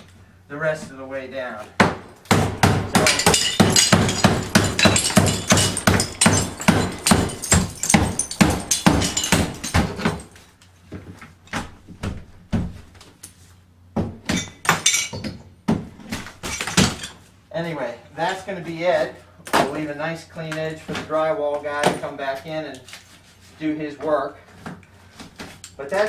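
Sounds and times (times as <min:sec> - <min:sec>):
knocks and thuds: 0:01.8 - 0:10.3
drywall cracking and crumbling: 0:02.6 - 0:10.4.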